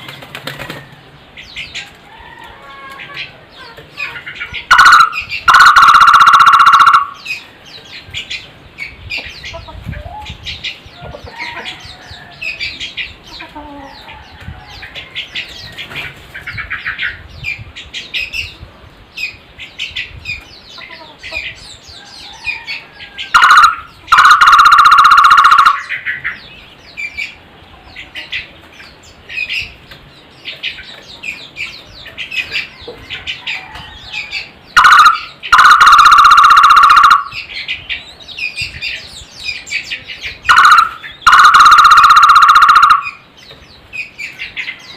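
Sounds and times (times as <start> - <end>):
small birds chirping: 0.0 - 44.9
barbet pulsing trill: 4.7 - 7.3, 23.3 - 25.9, 34.8 - 37.4, 40.5 - 43.2.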